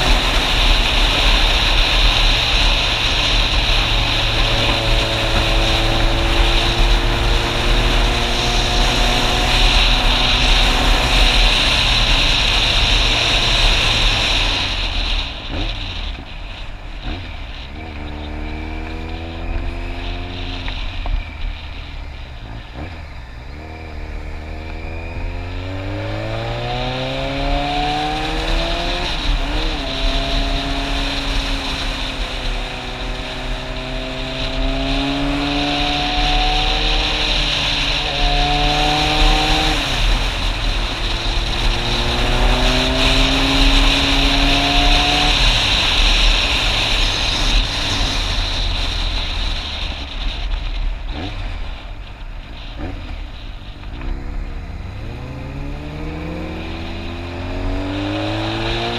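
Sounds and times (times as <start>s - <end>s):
motorcycle engine accelerating: 0.0s - 58.9s
wind rush: 0.0s - 58.9s.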